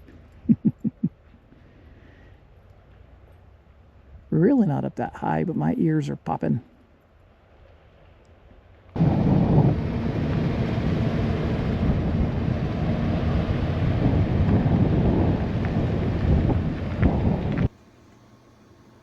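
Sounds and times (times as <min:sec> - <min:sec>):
wind buffeting microphone: 0:09.0 - 0:17.7.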